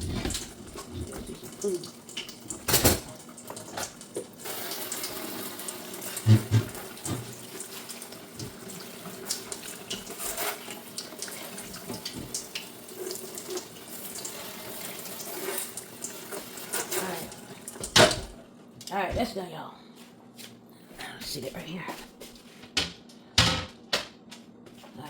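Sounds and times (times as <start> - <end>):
tap water running and splashing: 0.0 - 18.4
knock on glass shelf: 22.8 - 24.1.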